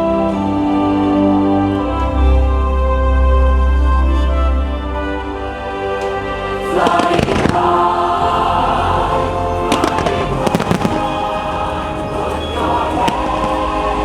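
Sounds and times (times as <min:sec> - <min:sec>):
music: 0:00.0 - 0:14.0
fireworks bursting and crackling: 0:06.6 - 0:08.0, 0:09.7 - 0:14.0.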